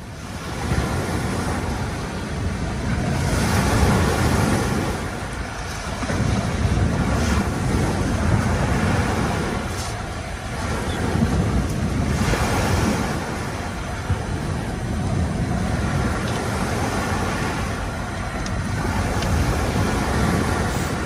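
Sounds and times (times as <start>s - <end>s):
waves washing on shore: 0.0s - 21.0s
wind rumbling on microphone: 0.0s - 21.0s.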